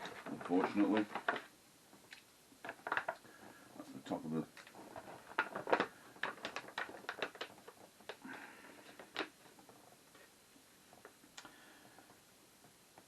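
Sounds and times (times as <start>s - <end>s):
plastic pouch crinkling: 0.0s - 9.7s.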